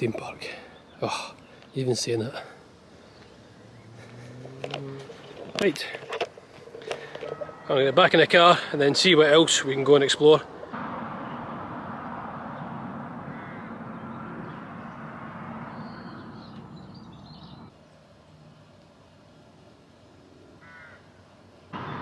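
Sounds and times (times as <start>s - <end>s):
outdoor background noise: 0.0s - 22.0s
crows cawing: 2.6s - 5.6s, 6.4s - 8.9s, 13.2s - 15.0s, 20.6s - 21.1s.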